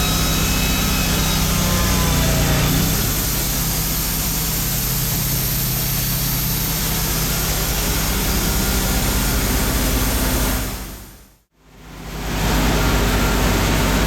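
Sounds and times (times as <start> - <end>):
saw blade cutting log: 0.0 - 4.2.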